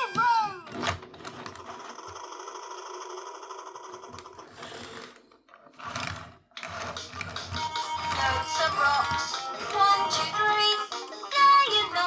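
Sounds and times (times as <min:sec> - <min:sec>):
toy bulldozer machine rattle: 0:00.7 - 0:09.0.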